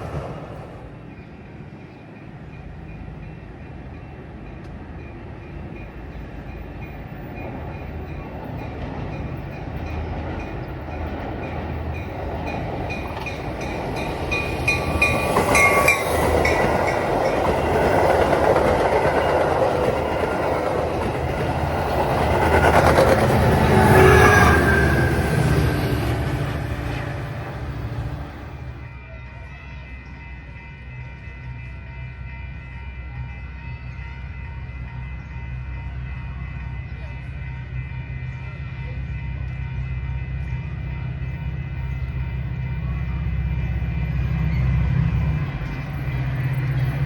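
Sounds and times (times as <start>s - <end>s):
train wheels clattering on rails: 5.6s - 28.7s.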